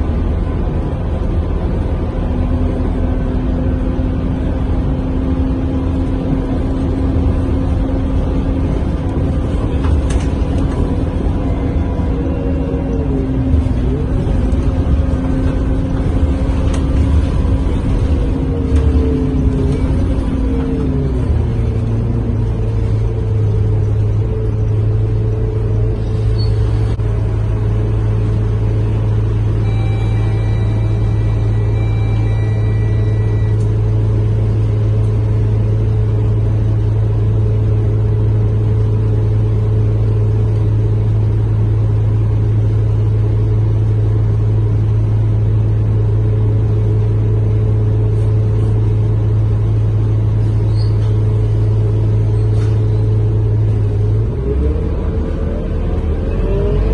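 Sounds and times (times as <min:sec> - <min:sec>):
bus engine drone: 0:00.0 - 0:56.9
faint high whine: 0:29.6 - 0:33.8.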